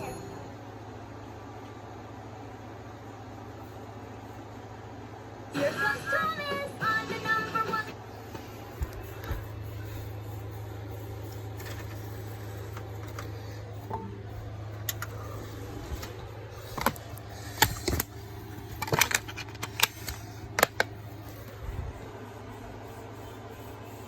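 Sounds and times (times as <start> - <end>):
sharp clicks and clattering: 16.0 - 21.6.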